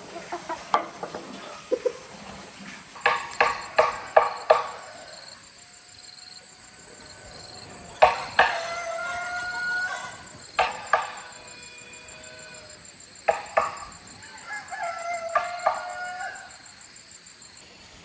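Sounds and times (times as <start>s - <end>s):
tool knocking on wood: 3.0s - 4.8s
faint ringing: 3.0s - 17.7s.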